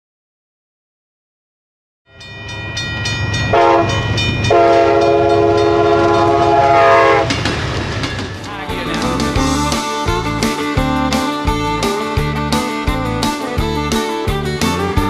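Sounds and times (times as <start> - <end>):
train rumbling past: 2.1 - 15.0
train air horn: 3.5 - 7.3
guitar music: 8.3 - 15.0.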